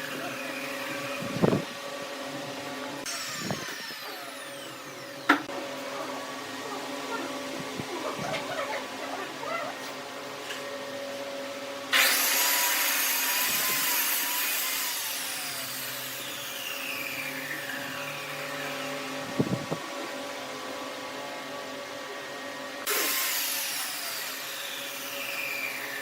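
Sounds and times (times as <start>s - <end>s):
hissing whining saw cut: 2.9s - 9.9s, 11.8s - 19.6s, 22.7s - 26.0s
power tool motor hum: 3.0s - 5.6s, 11.8s - 19.9s, 22.8s - 26.0s.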